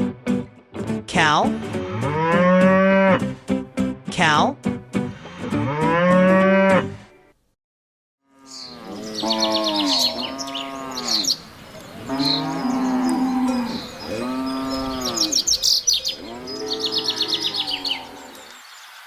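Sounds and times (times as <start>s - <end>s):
cattle mooing: 1.8s - 3.2s, 8.2s - 18.4s
small birds chirping: 8.5s - 19.0s.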